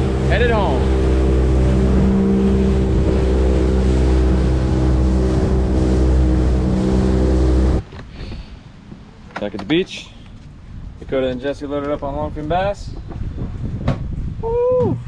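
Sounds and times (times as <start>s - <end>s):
motorboat engine droning: 0.0s - 7.8s.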